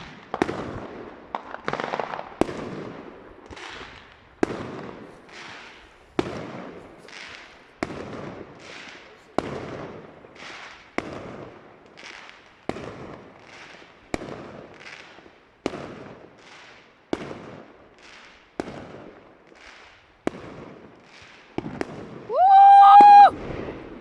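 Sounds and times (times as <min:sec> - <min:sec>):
whistling firework: 0:21.1 - 0:24.0
firework bangs: 0:21.6 - 0:24.0.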